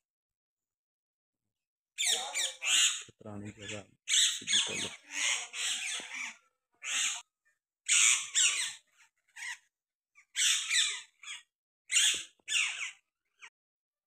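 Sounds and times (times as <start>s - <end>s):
birds squawking: 2.0s - 7.3s, 7.9s - 13.5s.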